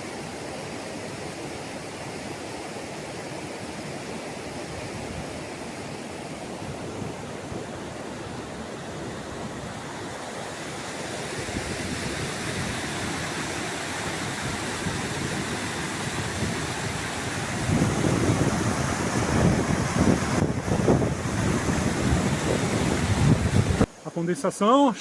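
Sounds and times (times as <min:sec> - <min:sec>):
river water rushing: 0:00.0 - 0:25.0
wind buffeting microphone: 0:11.2 - 0:23.9.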